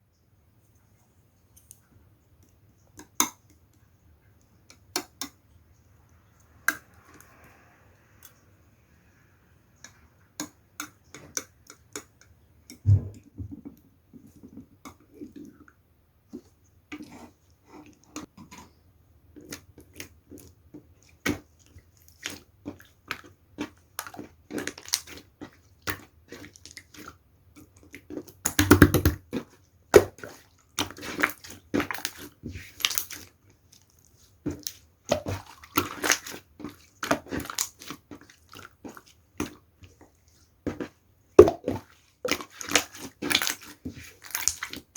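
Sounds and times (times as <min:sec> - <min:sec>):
heavy thump: 0:12.8 - 0:13.5
slime clicking and popping: 0:28.4 - 0:29.2.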